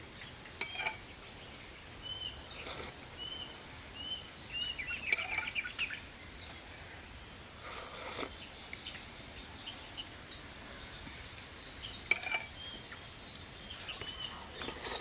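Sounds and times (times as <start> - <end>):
outdoor background noise: 0.0 - 15.0
cutlery clinking against a dish: 12.1 - 12.5.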